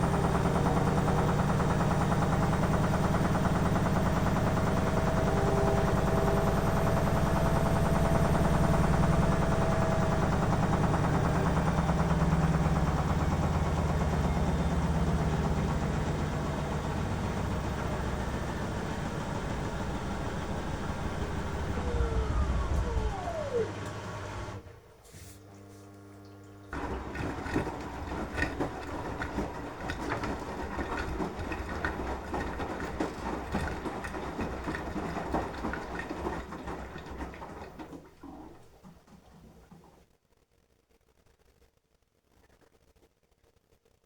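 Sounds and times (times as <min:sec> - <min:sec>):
washing machine motor whine: 0:00.0 - 0:40.0
wet wash sloshing and clattering: 0:26.7 - 0:40.0.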